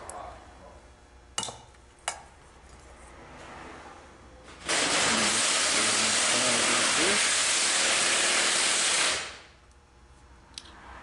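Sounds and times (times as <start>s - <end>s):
nozzle spraying hiss: 4.6s - 9.5s.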